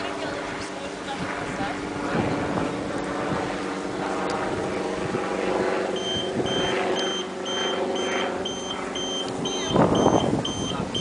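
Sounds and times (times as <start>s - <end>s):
vehicle running: 0.0s - 11.0s
vehicle warning beeper: 6.0s - 11.0s.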